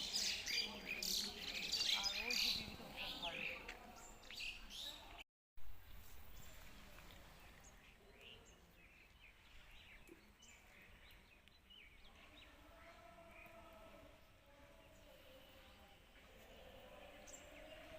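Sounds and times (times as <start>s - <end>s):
faint birds chirping: 5.8s - 17.9s.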